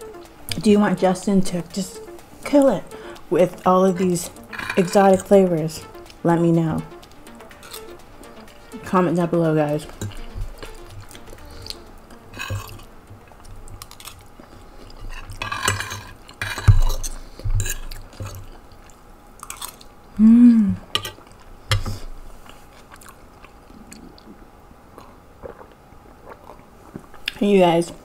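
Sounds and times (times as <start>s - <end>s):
person humming mmm: 20.2s - 20.9s.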